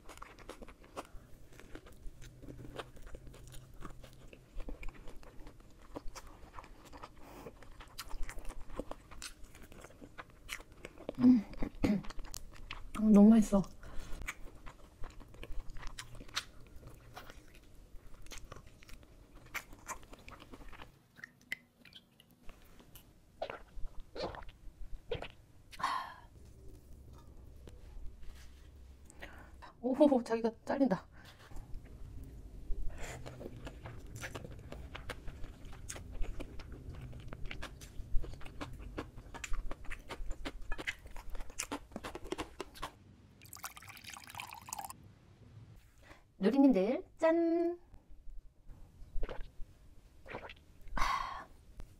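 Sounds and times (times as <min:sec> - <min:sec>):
chewing and biting: 0:00.0 - 0:13.0, 0:14.0 - 0:25.4, 0:33.0 - 0:44.9
liquid pouring into glass: 0:43.4 - 0:45.0.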